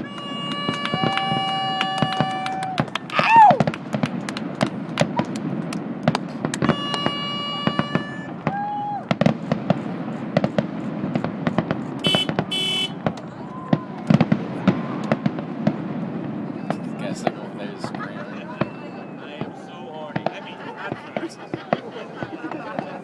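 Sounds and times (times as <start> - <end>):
horn blasts: 0.0 - 2.8, 6.6 - 8.4, 12.0 - 13.0
fireworks crackling and banging: 0.0 - 23.0
person shouting: 1.0 - 3.6.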